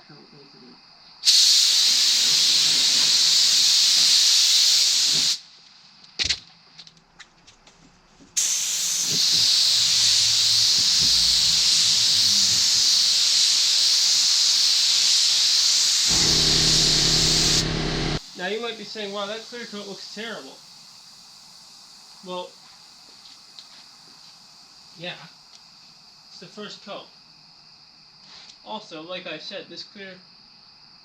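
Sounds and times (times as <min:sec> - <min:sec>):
spray gun hissing: 0:01.2 - 0:05.4, 0:08.4 - 0:18.4
low hum: 0:09.5 - 0:12.5, 0:16.1 - 0:18.2.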